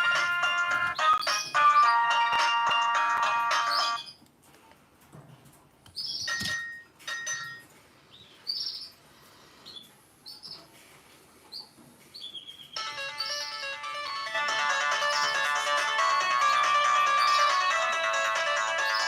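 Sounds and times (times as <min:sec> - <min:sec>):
bird chirps: 0:11.6 - 0:13.8, 0:16.4 - 0:17.7.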